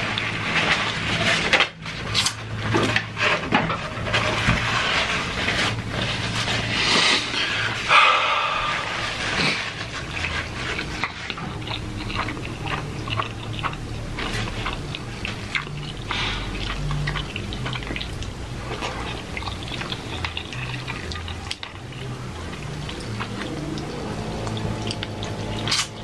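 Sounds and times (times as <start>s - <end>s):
wet chewing and lip smacking: 9.2s - 26.0s.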